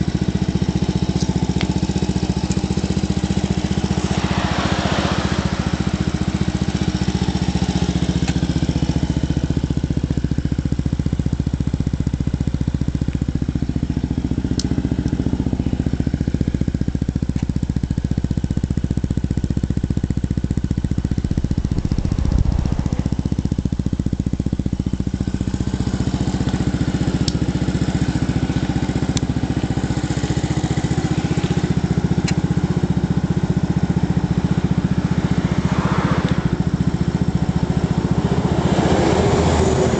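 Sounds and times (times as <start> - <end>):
scooter engine idling: 0.0 - 39.9
low thump: 21.0 - 24.3.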